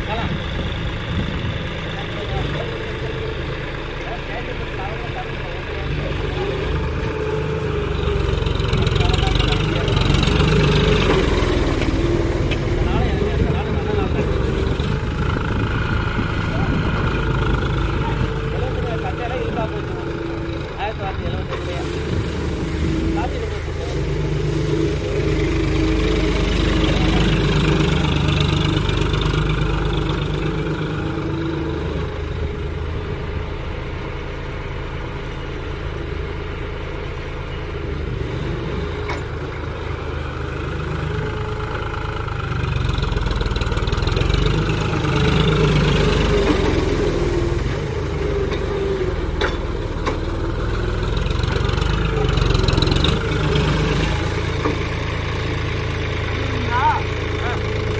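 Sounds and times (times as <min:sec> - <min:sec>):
tractor engine running: 0:00.0 - 0:57.9.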